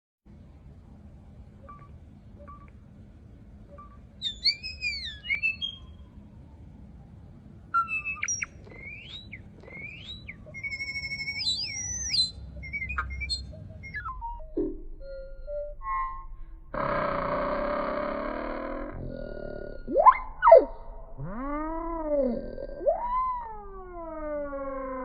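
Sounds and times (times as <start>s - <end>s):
bird chirps: 1.7s - 2.7s, 3.7s - 6.1s, 7.7s - 16.3s
bird whistling phrases: 4.2s - 6.1s, 7.7s - 14.4s, 22.8s - 24.4s.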